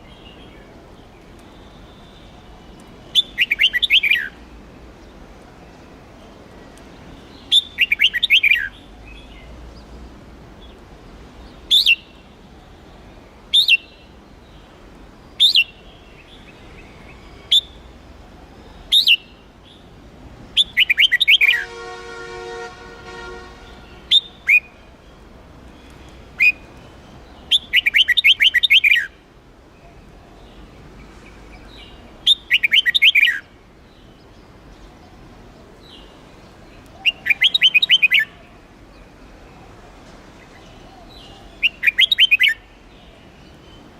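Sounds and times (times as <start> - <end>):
bird singing whistled phrases: 3.1 - 4.4, 7.5 - 8.7, 18.9 - 19.3, 20.6 - 21.7, 24.0 - 24.8, 26.4 - 26.6, 27.5 - 29.1, 32.2 - 33.5, 37.0 - 38.4, 41.6 - 42.6.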